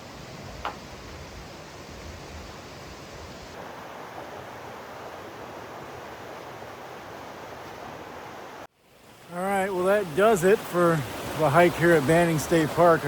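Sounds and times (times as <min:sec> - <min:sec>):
river rapids rushing: 0:09.2 - 0:13.0.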